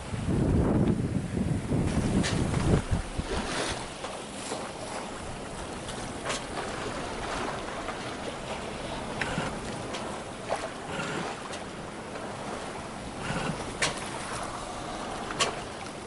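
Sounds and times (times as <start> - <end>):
wind rumble on microphone: 0.0 - 16.0
water splashing against boat hull: 1.7 - 16.0.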